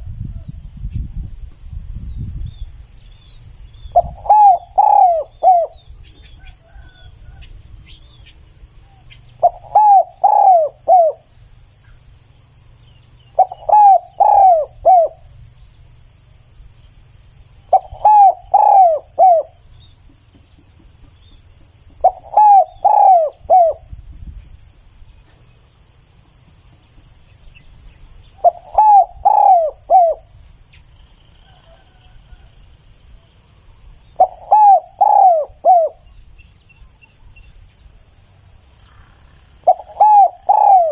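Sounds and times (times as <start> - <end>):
insects chirring: 0.0 - 40.9
dove cooing: 3.9 - 5.8, 8.9 - 11.2, 13.3 - 15.3, 17.7 - 19.6, 21.9 - 23.9, 28.4 - 30.3, 34.2 - 36.1, 38.9 - 40.9.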